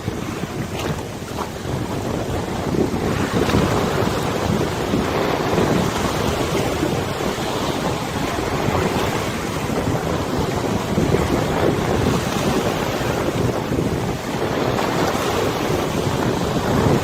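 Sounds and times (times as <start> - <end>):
river water lapping: 0.0 - 17.0
wind buffeting microphone: 0.0 - 17.0.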